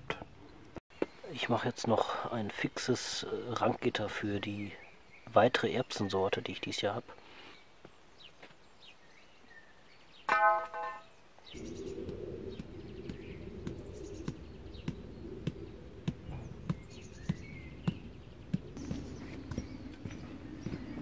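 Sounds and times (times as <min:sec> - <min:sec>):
small birds chirping: 0:00.0 - 0:21.0
low rumble: 0:11.5 - 0:21.0.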